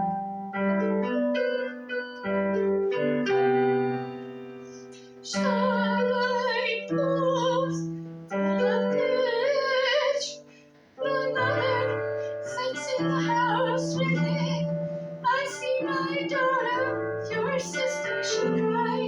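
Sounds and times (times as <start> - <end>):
piano chords: 0.0 - 19.0
woman singing operatically: 5.2 - 19.0.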